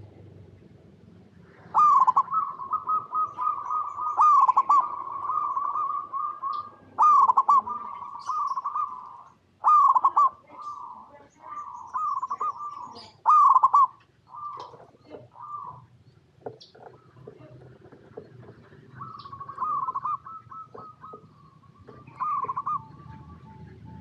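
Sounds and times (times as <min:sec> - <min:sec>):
dove trilling coos: 0:01.4 - 0:24.0.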